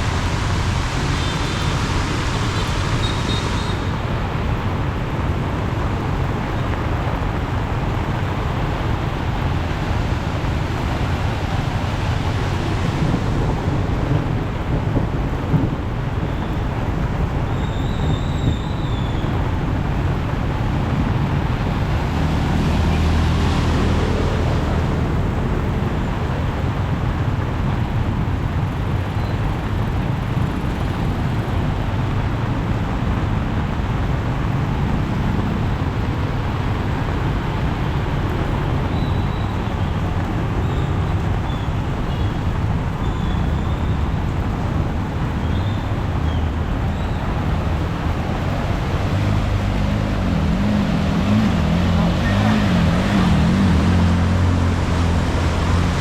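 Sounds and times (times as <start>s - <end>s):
heavy rain: 0.0s - 56.0s
road traffic on wet street: 0.0s - 56.0s
vehicle passing: 46.6s - 56.0s.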